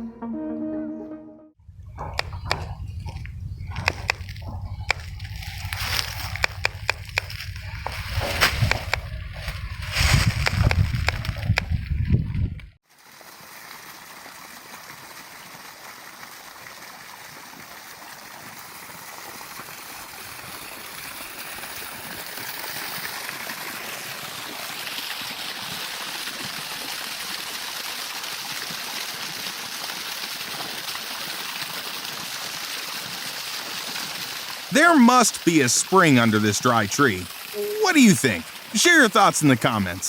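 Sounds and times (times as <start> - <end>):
running water: 1.7 - 40.0.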